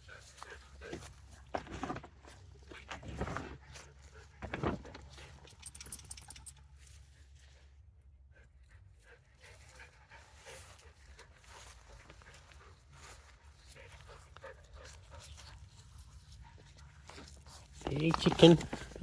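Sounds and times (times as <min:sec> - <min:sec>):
dog panting: 0:08.3 - 0:19.0.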